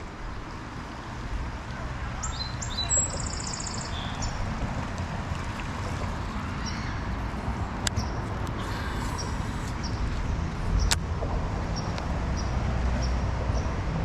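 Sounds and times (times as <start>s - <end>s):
songbird singing with trill: 2.2s - 4.4s.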